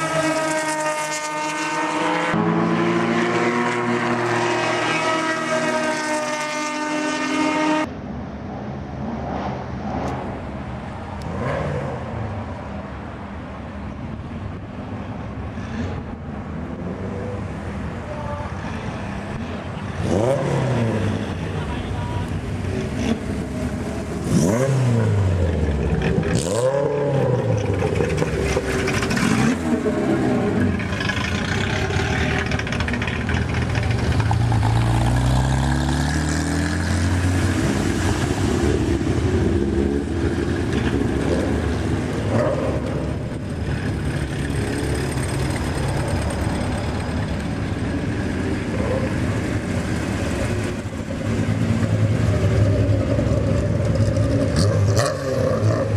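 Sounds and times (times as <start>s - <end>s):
engine noise: 0.0s - 55.9s
race cars passing: 0.0s - 55.9s
car engine revving: 22.6s - 55.9s.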